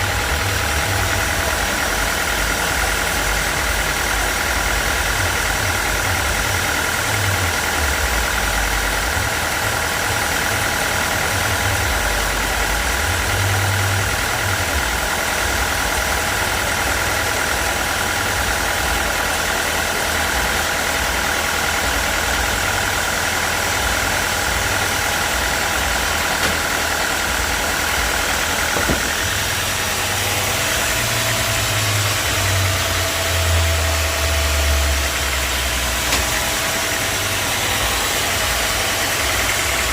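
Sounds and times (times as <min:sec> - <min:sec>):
sawmill engine running: 0:00.0 - 0:39.9
steady high whine: 0:18.6 - 0:39.9.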